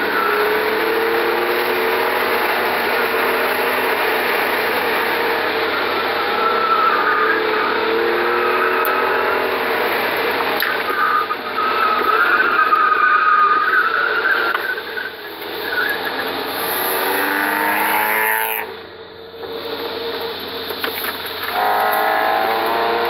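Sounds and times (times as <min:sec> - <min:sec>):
car engine revving: 0:00.0 - 0:23.0
tyres squealing: 0:21.5 - 0:23.0.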